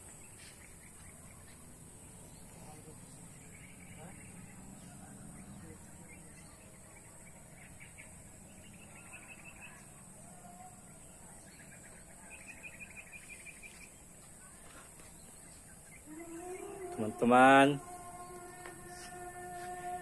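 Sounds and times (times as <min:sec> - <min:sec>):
faint outdoor background noise: 0:00.0 - 0:20.0
bird chirping in rapid trills: 0:00.1 - 0:10.2, 0:15.2 - 0:20.0.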